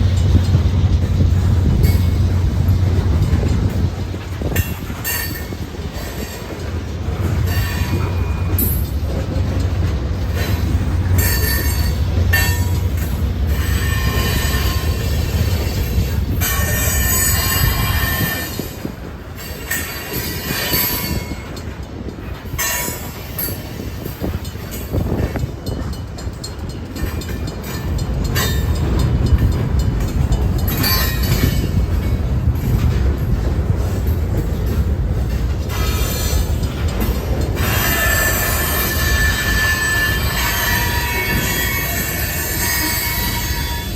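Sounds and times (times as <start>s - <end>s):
train wheels rumbling on rails: 0.0s - 43.9s
high-pitched wheel squeals: 37.6s - 43.9s.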